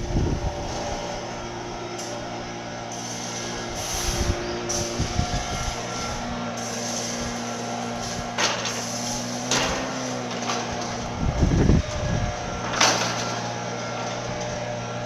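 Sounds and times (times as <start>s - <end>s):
gusty wind buffeting microphone: 0.0s - 2.6s, 3.5s - 15.0s
sharp knocks and rattles: 8.3s - 15.0s.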